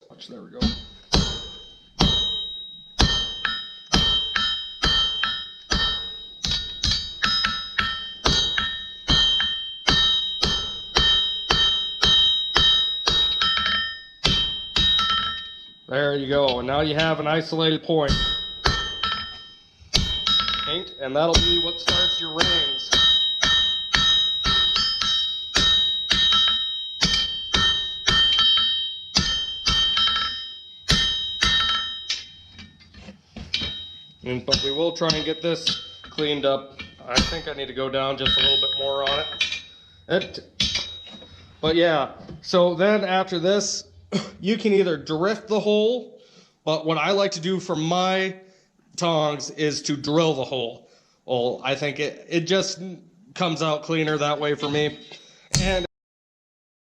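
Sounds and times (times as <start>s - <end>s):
hammer striking hot steel on anvil: 0.6s - 15.8s, 18.0s - 41.8s
metallic ring of anvil: 0.6s - 17.4s, 18.0s - 41.9s, 54.1s - 55.9s.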